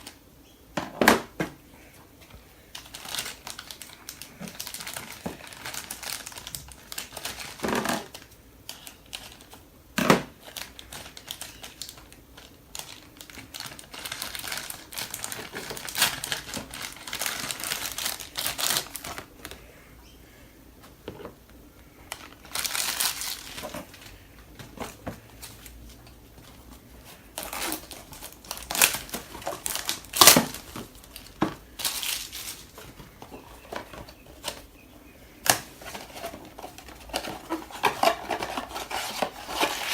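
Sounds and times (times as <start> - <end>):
packaging crinkling and rustling: 2.2 - 19.7, 20.8 - 39.9.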